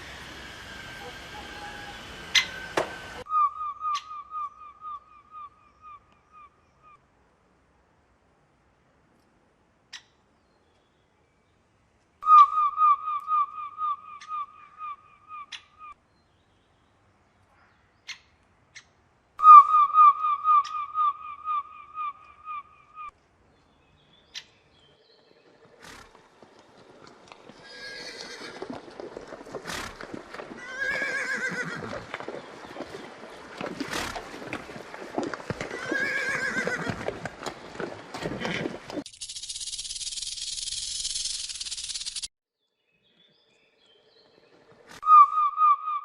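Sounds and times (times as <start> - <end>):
horse whinnying: 27.6 - 28.8, 30.6 - 32.1, 35.6 - 37.1
quick short high-pitched calls: 39.1 - 42.3.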